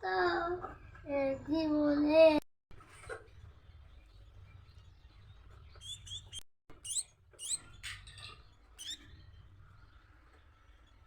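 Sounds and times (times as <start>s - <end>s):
baby finch begging calls: 5.8s - 7.7s, 8.8s - 9.0s.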